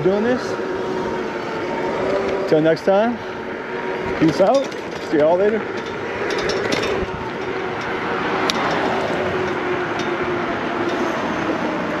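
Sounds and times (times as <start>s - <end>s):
bike tyres rolling: 0.0s - 12.0s
faint motor whine: 0.0s - 12.0s
wind noise: 3.8s - 12.0s.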